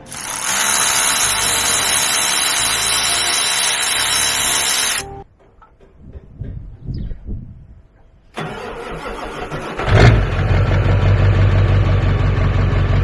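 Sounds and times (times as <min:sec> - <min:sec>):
power tool running: 0:00.0 - 0:05.1.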